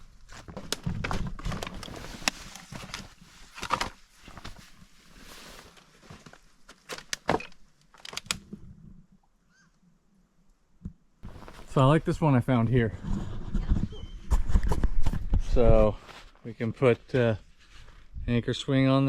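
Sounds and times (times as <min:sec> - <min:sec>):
driftwood being handled: 0:11.2 - 0:12.0.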